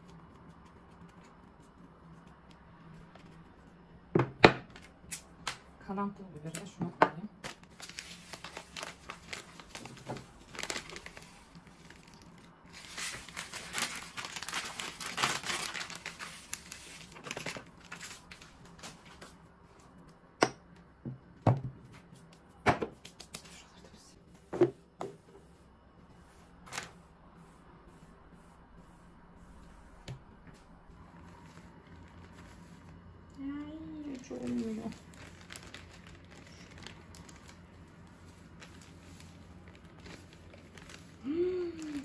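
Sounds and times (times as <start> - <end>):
plastic packet crinkling: 7.4 - 18.9, 34.0 - 42.0.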